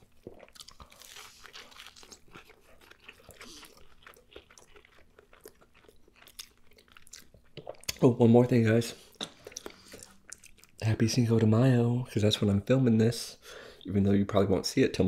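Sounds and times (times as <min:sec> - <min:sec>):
crunchy chewing: 0:00.0 - 0:08.0.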